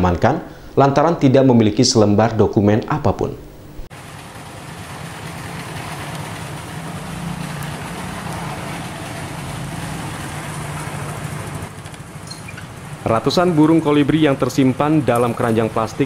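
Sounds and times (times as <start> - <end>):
background noise: 0.0 - 3.9
engine idling: 3.9 - 16.0.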